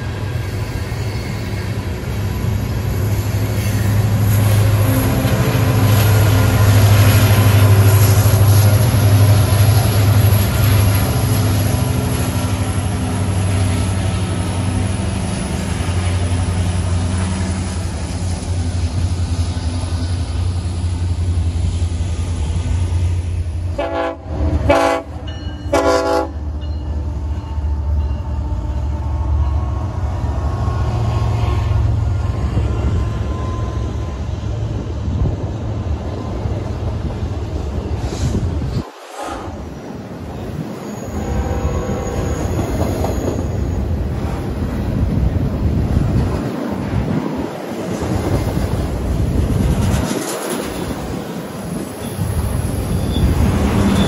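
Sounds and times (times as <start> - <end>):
freight cars rolling by: 0.0 - 23.8
diesel locomotives rumbling past: 0.0 - 54.0
train horn blasts: 3.6 - 9.4, 23.7 - 34.3, 41.0 - 42.6.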